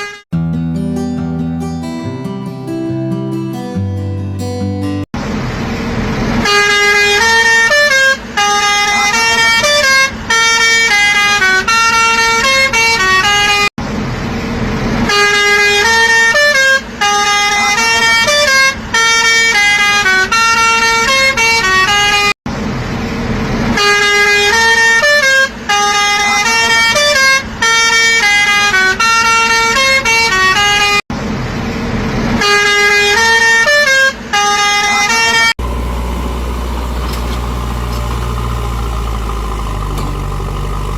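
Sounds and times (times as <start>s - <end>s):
musical horn playing a tune: 6.4s - 13.7s, 15.1s - 22.3s, 23.8s - 31.0s, 32.4s - 40.9s.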